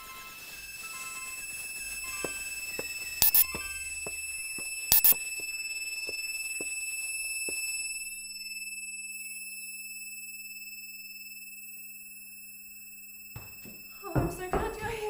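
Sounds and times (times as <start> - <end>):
high-pitched electronic tone: 0.0 - 9.8
faint regular ticks: 0.1 - 7.8.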